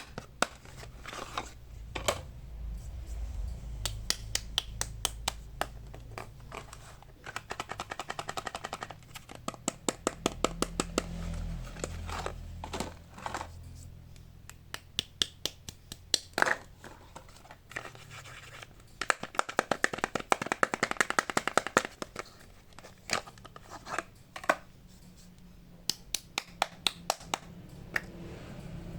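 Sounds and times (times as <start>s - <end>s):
tapping and scratching: 4.8s - 13.6s, 15.0s - 24.6s.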